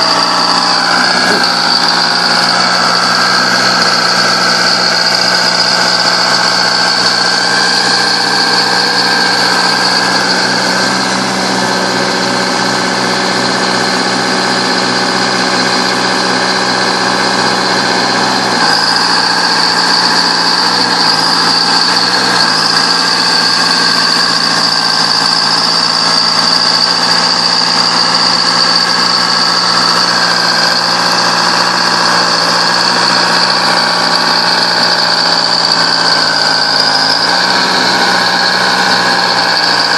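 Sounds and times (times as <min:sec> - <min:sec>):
bulldozer engine running: 0:00.0 - 0:39.9
high whine: 0:00.0 - 0:39.9.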